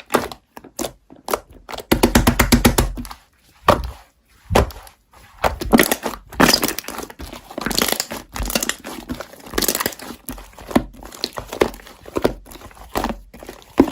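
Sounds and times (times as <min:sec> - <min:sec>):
packaging crinkling and rustling: 0:04.5 - 0:13.9.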